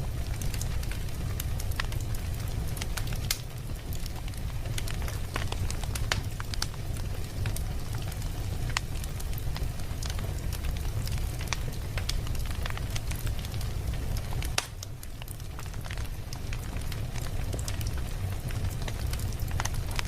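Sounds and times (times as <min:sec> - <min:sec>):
fire crackling and popping: 0:00.0 - 0:20.0
low fire rumble: 0:00.0 - 0:20.0.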